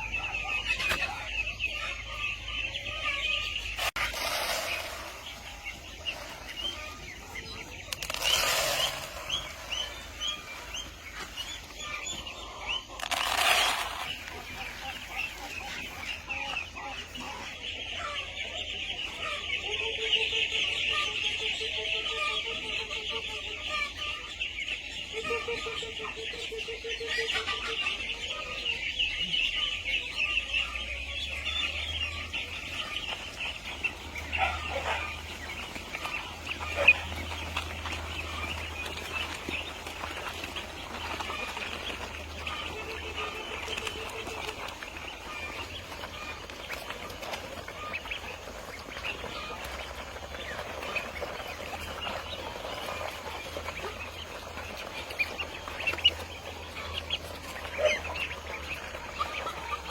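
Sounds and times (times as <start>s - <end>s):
chickens clucking: 0.0s - 59.9s
rustling bursts: 3.7s - 11.7s, 12.8s - 15.6s.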